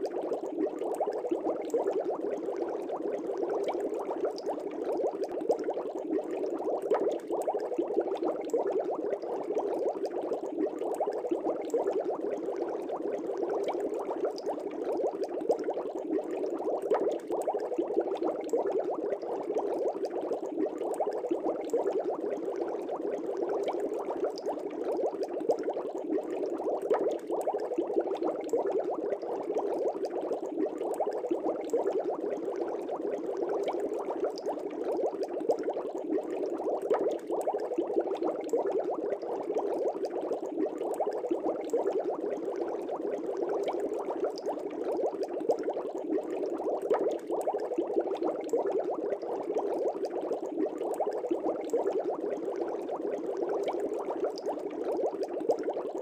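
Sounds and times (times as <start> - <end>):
air bubbling in an aquarium: 0.0 - 56.0.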